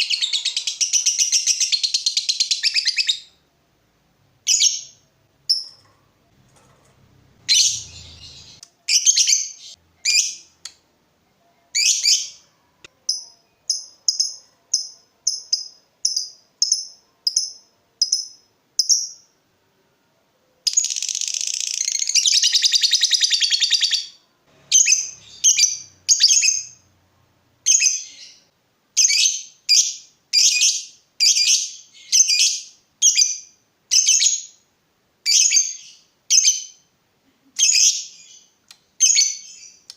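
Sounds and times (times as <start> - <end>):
bird chirping and trilling: 0.0 - 3.4, 4.5 - 5.9, 7.4 - 10.6, 11.7 - 12.5, 20.6 - 26.8.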